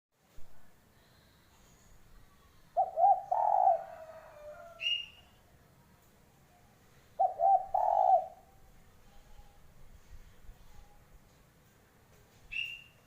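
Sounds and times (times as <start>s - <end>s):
dove cooing: 2.8s - 5.0s, 7.2s - 8.6s.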